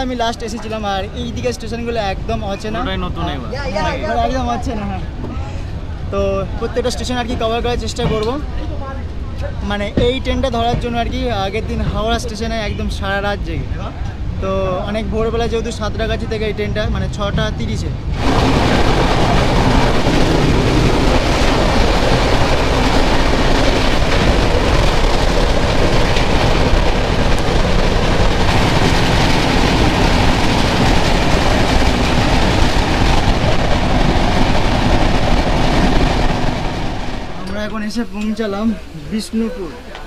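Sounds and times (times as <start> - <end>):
train wheels on rails: 17.2 - 40.0.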